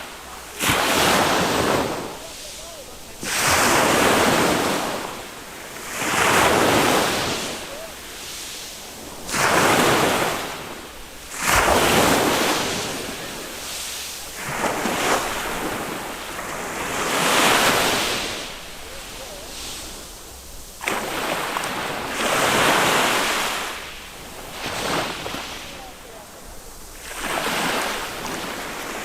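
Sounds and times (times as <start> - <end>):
wave slap: 0.0 - 5.2, 9.2 - 20.2, 20.8 - 26.3
small waves breaking on beach: 0.0 - 29.0.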